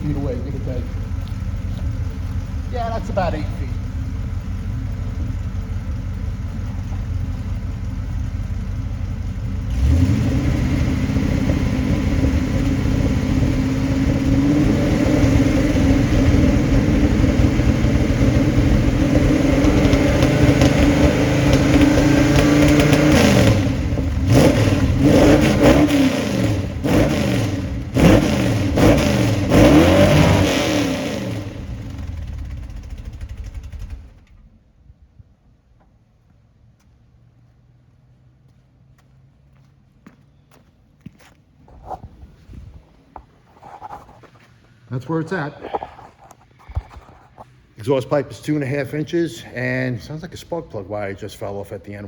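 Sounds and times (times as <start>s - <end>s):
car engine idling and revving: 0.0s - 34.9s, 35.6s - 47.8s
sharp throttle blips: 8.8s - 34.5s.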